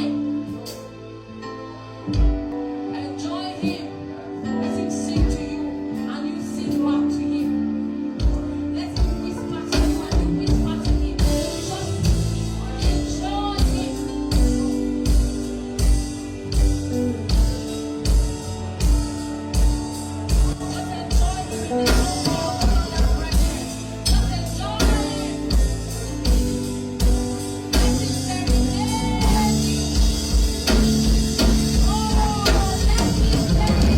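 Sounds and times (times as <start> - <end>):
guitar: 0.0 - 33.9
person singing: 0.0 - 33.9
steady drum beat: 8.2 - 33.9.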